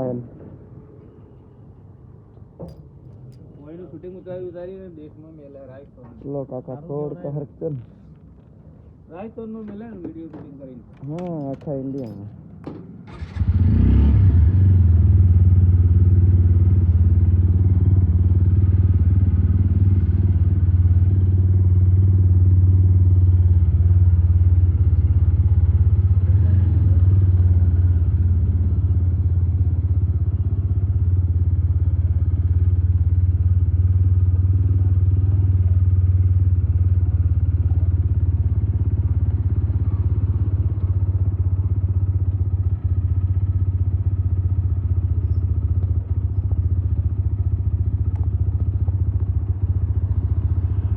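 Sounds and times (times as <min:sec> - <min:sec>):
motorcycle engine running: 0:14.4 - 0:50.9.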